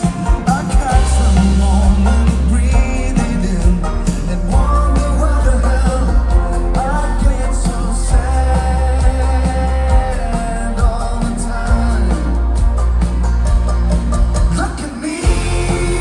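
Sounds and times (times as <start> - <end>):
drum hits: 0.0 - 10.2
person singing lead vocal: 0.0 - 13.0, 14.5 - 16.0
folk-rock band playing: 0.0 - 16.0
heavy bass line: 0.0 - 16.0.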